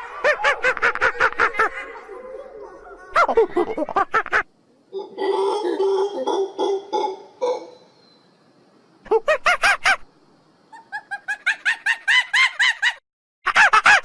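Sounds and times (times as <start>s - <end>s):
monkey calls: 0.0s - 7.9s, 10.7s - 13.0s.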